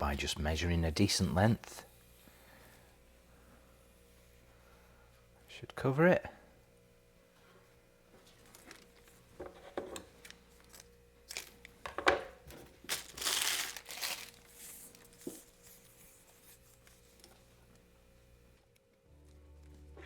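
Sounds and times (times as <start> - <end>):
tape crinkling and clicking: 8.4 - 9.2, 10.1 - 11.9, 12.8 - 15.8
tape tearing with papery rustle: 12.8 - 16.9.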